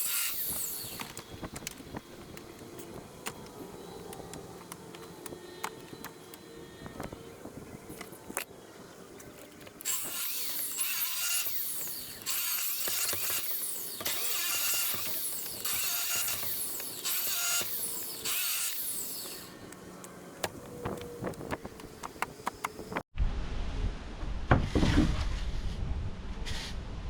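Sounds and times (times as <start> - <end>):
hand saw cutting wood: 9.8 - 19.6.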